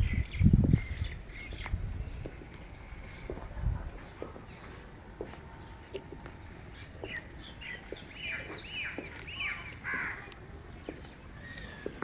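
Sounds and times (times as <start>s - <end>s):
bird calling: 0.0s - 12.0s.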